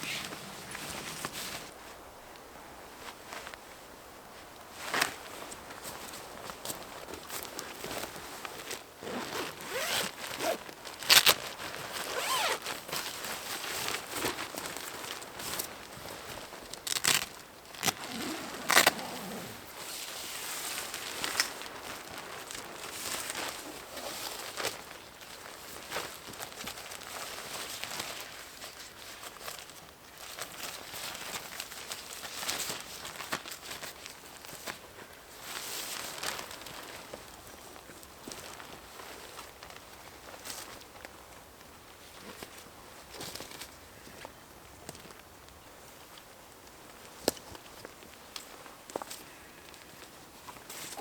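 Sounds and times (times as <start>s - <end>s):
rustling and crinkling: 0.0s - 51.0s
zipper being pulled: 9.0s - 10.6s, 12.1s - 12.6s, 17.8s - 19.9s.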